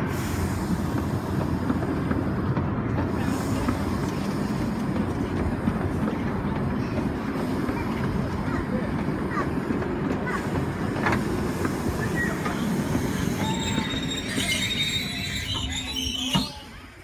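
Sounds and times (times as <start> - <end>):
train carriages rumbling: 0.0 - 17.0
train wheels squealing: 11.6 - 17.0.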